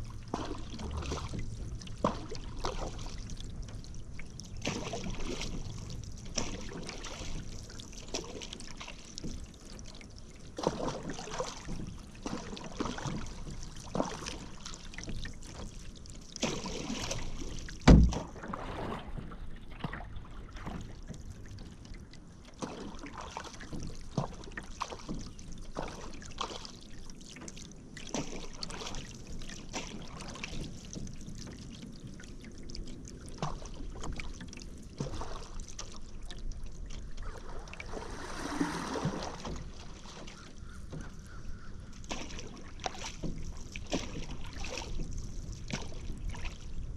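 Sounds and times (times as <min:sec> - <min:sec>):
paddle strokes in water: 0:00.0 - 0:46.9
water dripping off paddle: 0:20.6 - 0:46.6.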